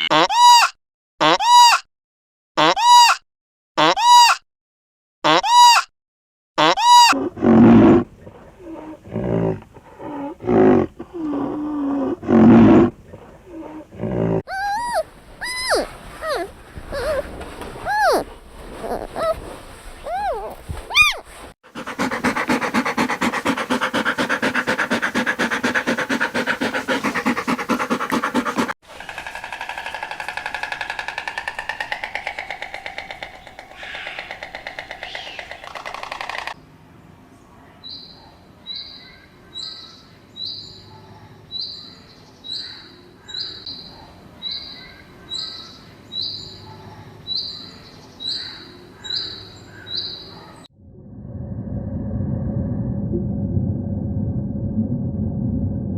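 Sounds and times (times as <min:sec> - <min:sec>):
rising and falling animal calls: 0:13.8 - 0:19.4, 0:21.8 - 0:36.6.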